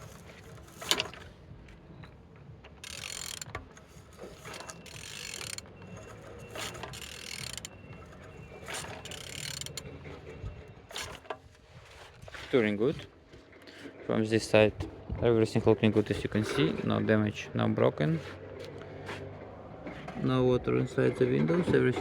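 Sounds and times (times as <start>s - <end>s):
engine turned over by wrench: 0.0s - 11.5s.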